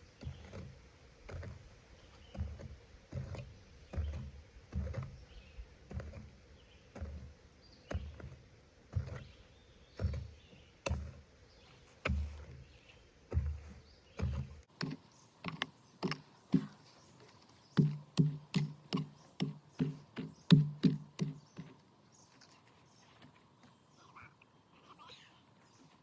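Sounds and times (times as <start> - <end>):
hoe thudding into wet soil: 13.3 - 21.8.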